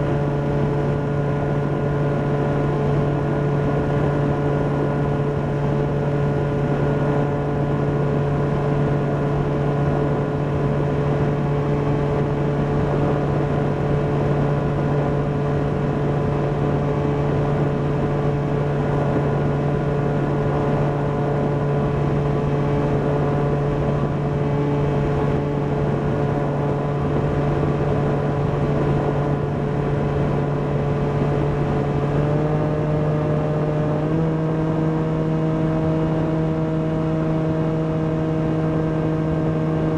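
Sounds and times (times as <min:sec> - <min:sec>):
electric motor and propeller whine: 0:00.0 - 0:39.9.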